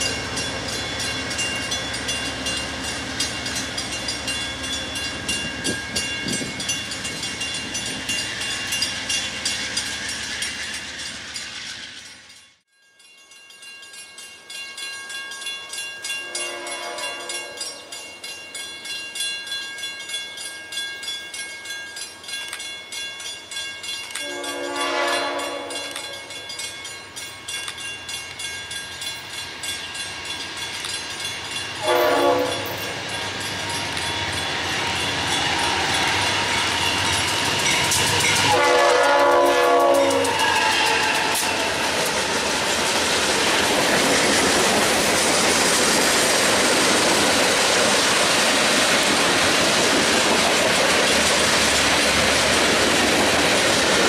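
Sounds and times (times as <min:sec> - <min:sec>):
train rumble and wheel clatter: 0:00.0 - 0:12.7, 0:13.3 - 0:54.0
distant locomotive horn: 0:16.3 - 0:17.8, 0:24.2 - 0:26.3, 0:31.8 - 0:33.4, 0:38.2 - 0:41.8.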